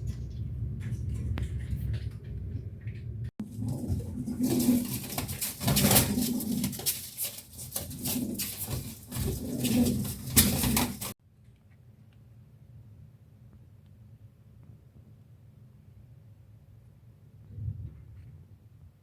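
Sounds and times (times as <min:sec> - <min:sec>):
pigeon cooing: 0:03.4 - 0:11.2
scratchy noises: 0:03.4 - 0:11.2.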